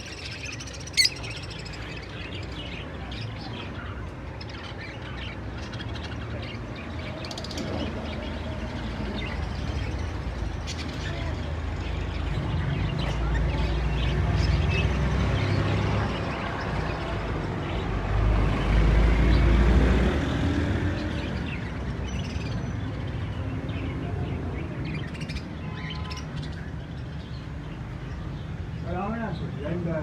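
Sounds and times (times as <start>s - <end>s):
market noise rumble: 0.0s - 21.9s
small birds chirping: 0.0s - 30.0s.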